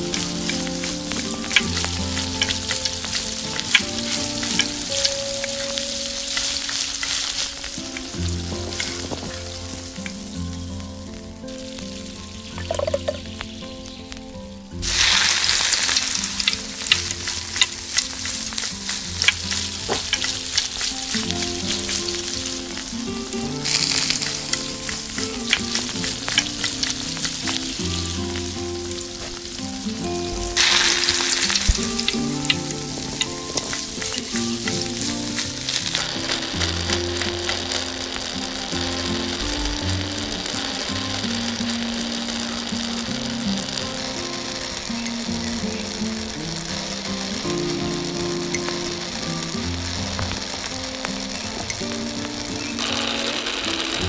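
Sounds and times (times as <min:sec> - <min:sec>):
food sizzling in hot oil: 0:00.0 - 0:54.0.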